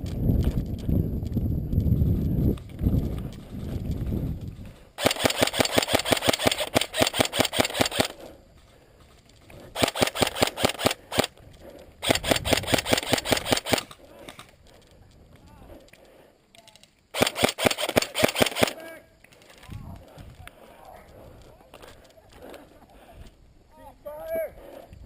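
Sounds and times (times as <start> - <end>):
low rumble of movement: 0.0 - 5.0
airsoft rifle full-auto bursts: 5.0 - 8.2, 9.8 - 11.3, 12.0 - 14.0, 17.1 - 18.8.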